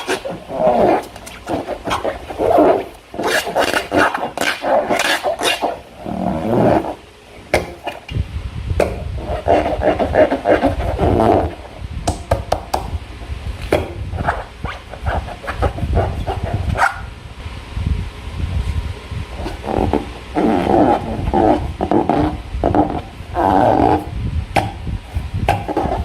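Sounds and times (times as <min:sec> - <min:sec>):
slime and balloons squelching: 0:00.0 - 0:07.0.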